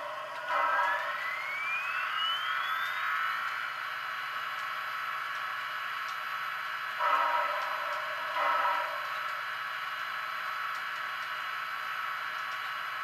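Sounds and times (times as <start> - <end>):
rising whine: 0.0 - 5.3.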